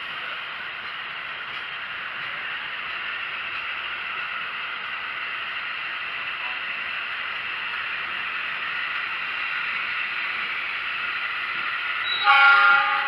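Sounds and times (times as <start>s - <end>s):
train rattling on rails: 0.0s - 13.0s.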